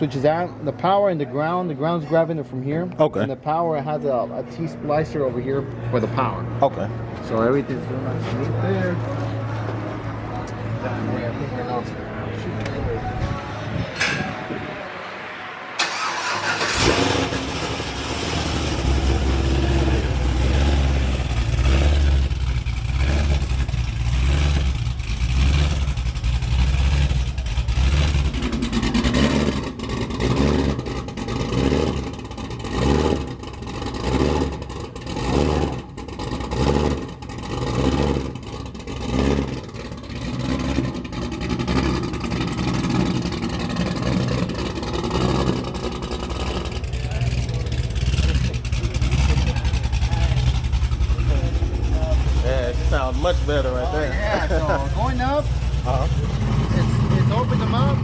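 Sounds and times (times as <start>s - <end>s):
car engine starting: 6.1s - 58.0s
car engine loping idle: 15.8s - 58.0s.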